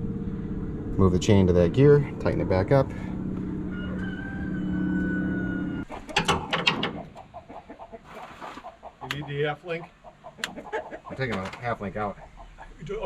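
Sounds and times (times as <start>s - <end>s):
mechanical hum with whine: 0.0s - 5.9s
chickens clucking: 3.7s - 13.0s.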